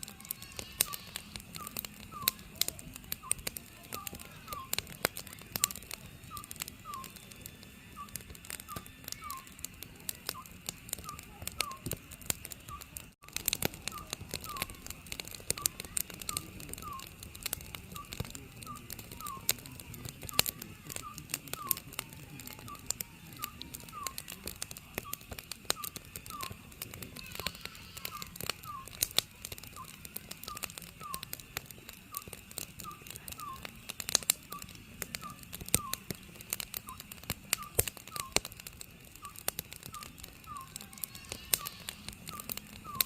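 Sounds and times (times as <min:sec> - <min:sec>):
wood fire crackling: 0:00.0 - 0:43.0
owl whistled calls: 0:00.2 - 0:04.9, 0:05.6 - 0:07.2, 0:07.9 - 0:09.6, 0:10.3 - 0:11.9, 0:13.9 - 0:14.9, 0:15.5 - 0:17.2, 0:18.0 - 0:19.6, 0:23.4 - 0:24.3, 0:27.2 - 0:29.0, 0:29.7 - 0:31.3, 0:32.1 - 0:33.7, 0:34.5 - 0:36.2, 0:37.6 - 0:38.4, 0:39.2 - 0:43.0.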